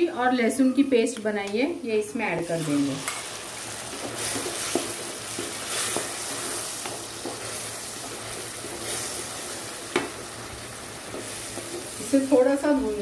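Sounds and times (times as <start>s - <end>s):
paste sizzling in butter: 2.4s - 12.7s
spatula scraping pan: 2.6s - 9.2s.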